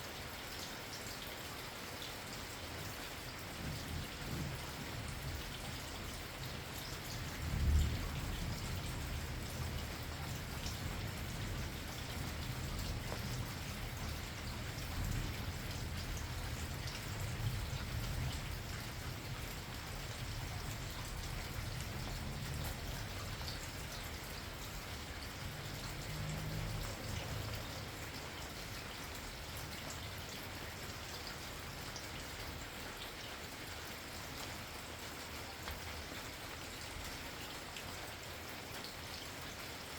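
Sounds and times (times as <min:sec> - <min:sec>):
steady rain: 0:00.0 - 0:39.9
raindrops ticking close by: 0:00.1 - 0:39.9
low thunder rumbles: 0:03.6 - 0:05.6, 0:07.2 - 0:23.8.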